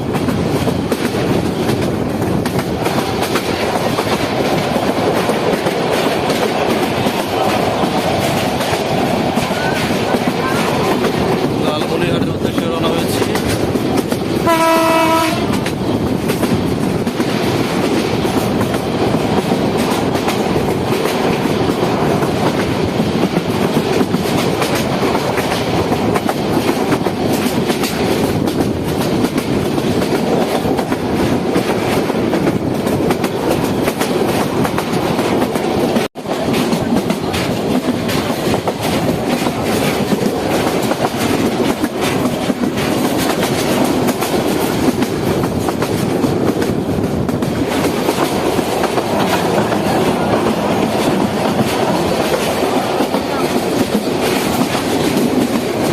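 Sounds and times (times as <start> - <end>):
train rumble: 0.0 - 55.9
train wheels clickety-clack: 0.0 - 55.9
train horn: 14.4 - 15.6.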